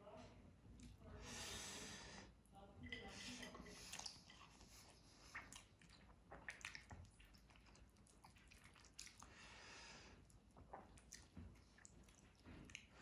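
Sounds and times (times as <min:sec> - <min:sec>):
person chewing food: 0:03.9 - 0:13.0.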